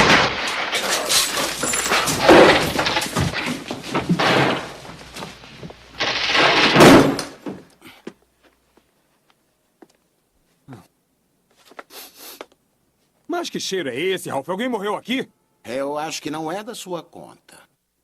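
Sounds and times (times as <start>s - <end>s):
loud bangs and clattering: 0.0s - 7.6s.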